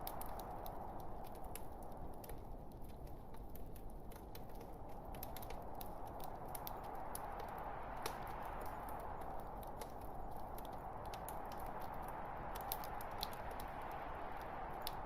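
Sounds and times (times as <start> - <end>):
burning wood crackling and popping: 0.0 - 15.0
hiss of fire flames: 3.6 - 15.0.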